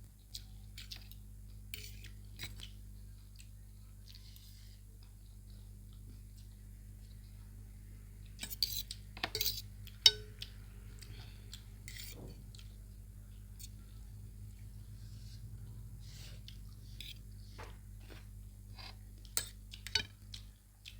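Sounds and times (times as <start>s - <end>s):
cutlery clinking on a plate: 8.4s - 10.4s.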